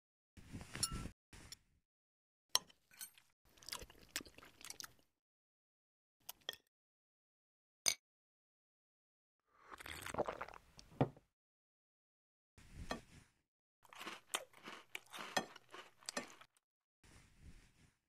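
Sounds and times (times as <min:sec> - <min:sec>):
crunching chewing bites: 0:13.9 - 0:16.5.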